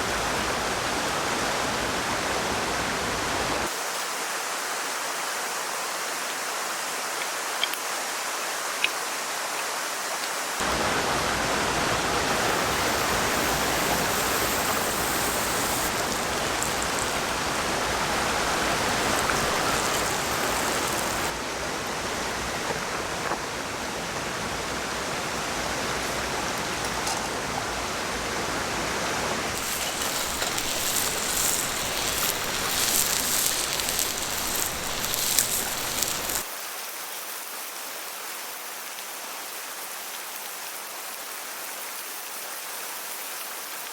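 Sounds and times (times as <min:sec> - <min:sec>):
water rushing: 0:00.0 - 0:03.7, 0:10.6 - 0:36.5
crackling patter: 0:10.6 - 0:21.4, 0:29.5 - 0:36.5.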